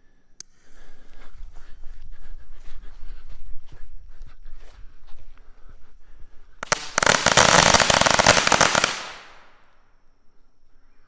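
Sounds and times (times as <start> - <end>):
firecrackers banging rapidly: 6.6 - 9.4.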